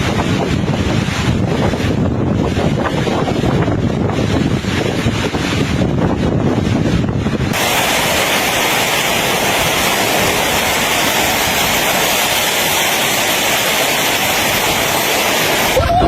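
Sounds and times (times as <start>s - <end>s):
heavy rain and wind hiss: 0.0s - 16.0s
wind buffeting microphone: 0.0s - 16.0s.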